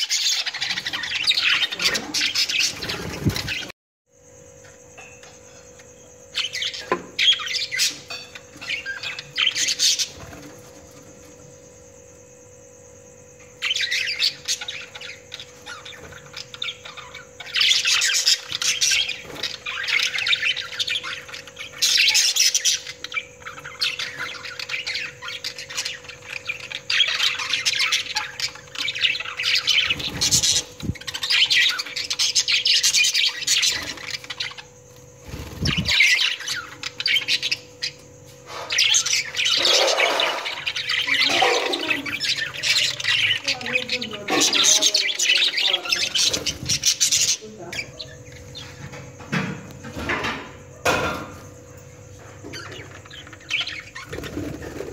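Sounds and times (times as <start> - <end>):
budgerigars chattering and squawking: 0.0 - 3.7, 6.4 - 10.6, 13.6 - 49.4, 52.2 - 54.9.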